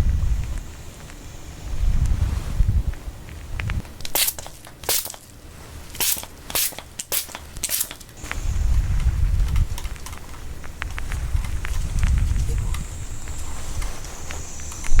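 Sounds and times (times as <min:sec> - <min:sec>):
low rumble: 0:00.0 - 0:04.0, 0:08.2 - 0:14.0
crackling and crunching: 0:02.9 - 0:15.0.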